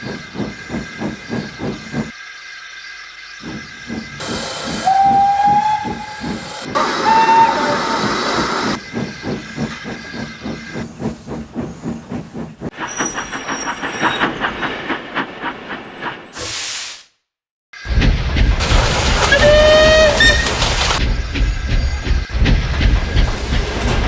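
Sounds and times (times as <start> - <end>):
steam locomotive exhaust beats: 0.0 - 2.2, 3.4 - 16.8, 17.9 - 24.0
steam whistle blasts: 4.8 - 8.4, 19.3 - 20.6
steam hiss: 12.6 - 17.2.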